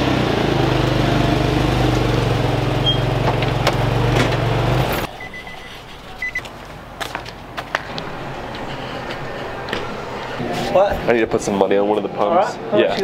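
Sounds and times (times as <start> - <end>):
car road noise: 0.0 - 11.9
short electronic beeps: 5.1 - 6.4.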